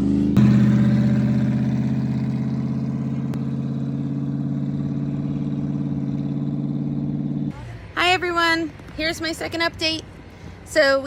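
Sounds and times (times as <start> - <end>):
race car engine droning: 0.0 - 7.6.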